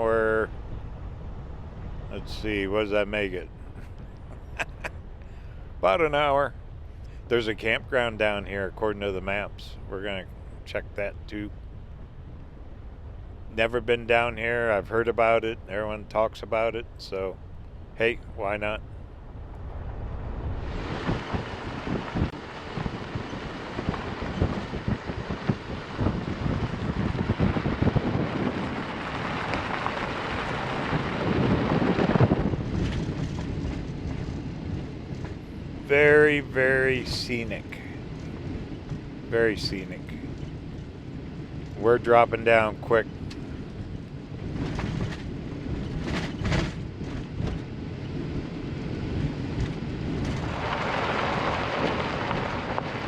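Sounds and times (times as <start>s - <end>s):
wind on microphone: 16.8s - 53.0s
tyres on gravel rumbling: 18.0s - 53.0s
knocks and rattles from bumps: 44.5s - 47.7s.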